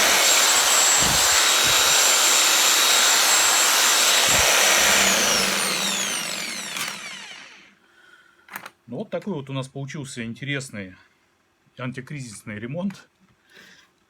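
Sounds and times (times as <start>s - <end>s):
reciprocating saw running: 0.0s - 7.7s.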